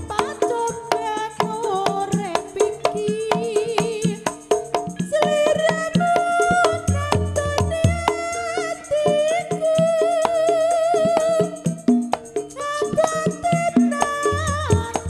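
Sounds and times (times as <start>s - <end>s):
drum and percussion strikes: 0.0s - 8.5s.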